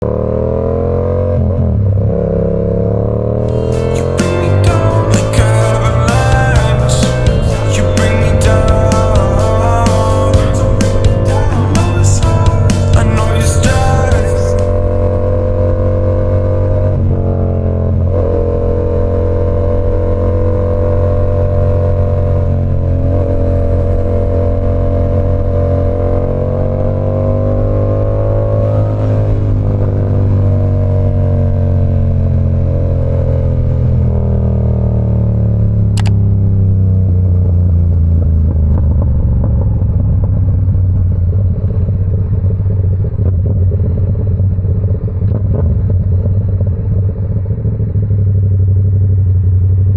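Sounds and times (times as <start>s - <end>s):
motorcycle exhaust note: 0.0s - 49.9s
brief sharp high sound: 3.4s - 14.8s.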